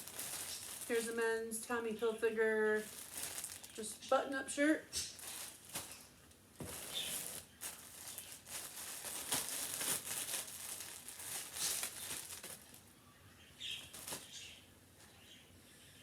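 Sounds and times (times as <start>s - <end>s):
packaging crinkling: 0.0s - 1.3s, 2.7s - 4.2s, 4.9s - 12.9s, 13.6s - 14.6s.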